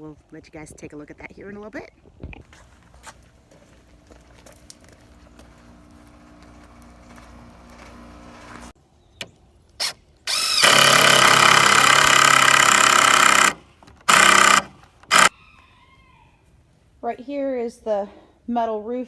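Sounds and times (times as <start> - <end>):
power drill whining: 9.8 - 15.3.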